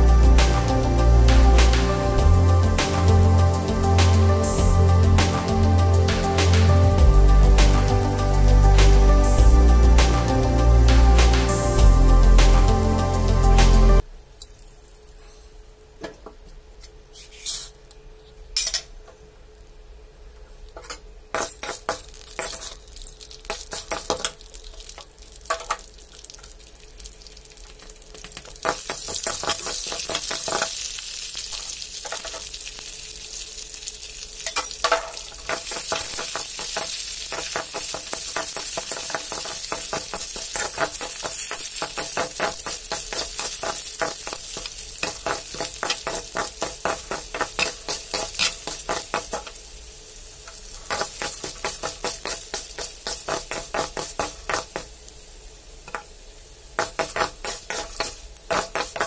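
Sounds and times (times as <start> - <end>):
lentils sizzling in hot oil: 14.3 - 15.2, 20.8 - 59.0
metal spatula scraping a pan: 17.1 - 17.8.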